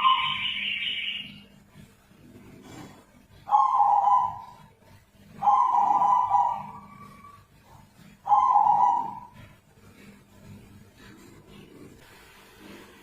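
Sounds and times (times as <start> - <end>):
dove cooing: 3.4 - 4.7, 5.3 - 9.6.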